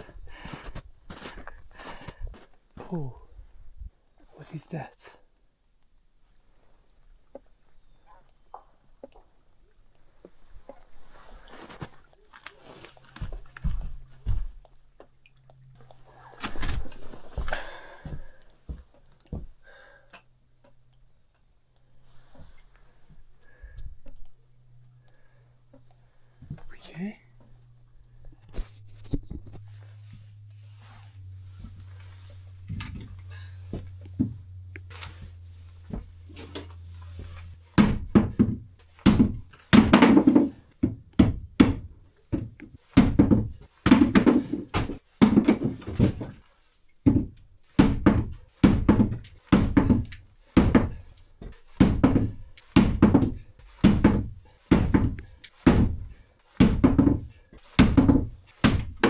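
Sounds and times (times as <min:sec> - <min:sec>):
faint low hum: 0:05.1 - 0:39.9.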